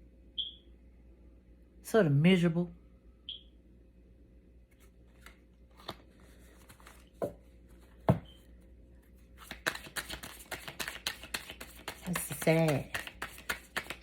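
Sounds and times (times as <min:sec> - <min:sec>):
cards snapping: 0:09.4 - 0:14.0
deck of cards shuffling: 0:09.4 - 0:14.0.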